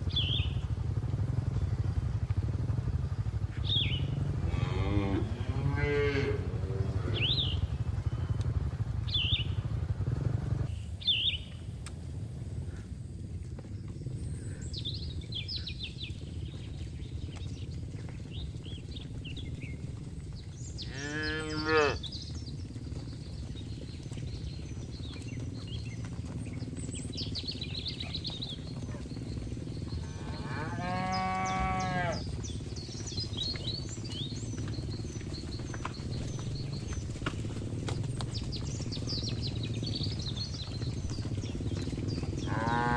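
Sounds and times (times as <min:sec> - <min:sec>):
steady low rumble: 0:00.0 - 0:21.4, 0:22.0 - 0:42.9
cattle mooing: 0:04.2 - 0:07.4, 0:20.8 - 0:22.0, 0:30.0 - 0:32.2, 0:42.4 - 0:42.9.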